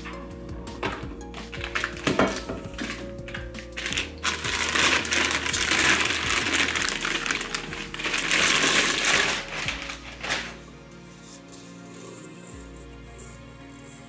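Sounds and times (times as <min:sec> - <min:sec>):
background music: 0:00.0 - 0:14.0
packaging crinkling and rustling: 0:01.5 - 0:10.6.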